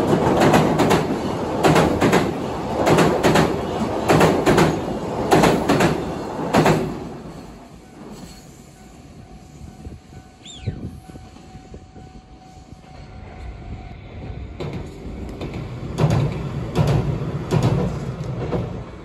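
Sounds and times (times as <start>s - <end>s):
train wheels clattering over rail joints: 0.0s - 8.6s, 14.5s - 19.0s.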